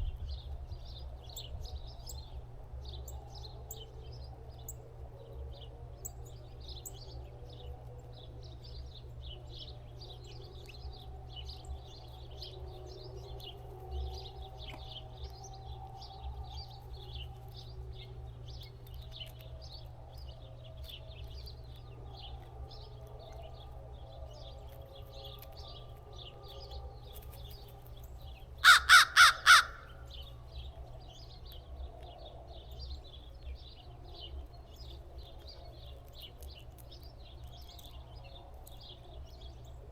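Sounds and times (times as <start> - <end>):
small birds chirping: 0.0 - 39.9
crow cawing: 28.6 - 30.0.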